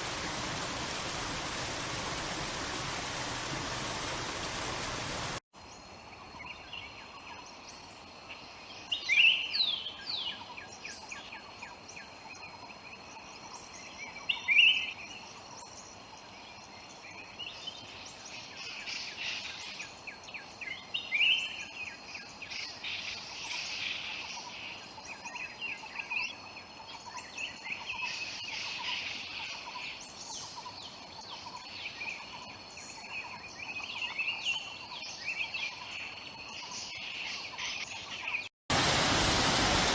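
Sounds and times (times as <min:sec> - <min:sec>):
rushing water: 0:00.0 - 0:05.4, 0:38.7 - 0:39.9.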